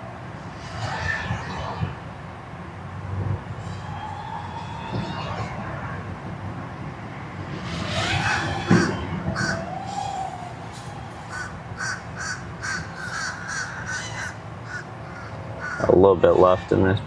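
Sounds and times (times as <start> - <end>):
low wind rumble: 0.0 - 17.0
bird harsh cawing calls: 8.0 - 15.9.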